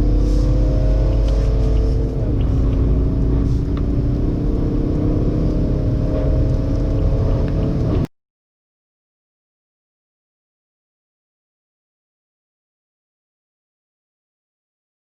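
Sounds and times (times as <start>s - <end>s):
car engine accelerating: 0.0s - 8.1s.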